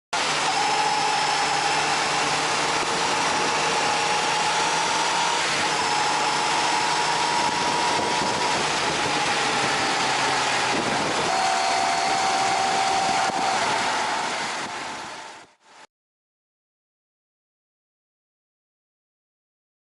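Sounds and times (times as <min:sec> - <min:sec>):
road noise: 0:00.1 - 0:15.8
motorcycle engine: 0:00.2 - 0:15.6
brake scraping whine: 0:00.2 - 0:15.8.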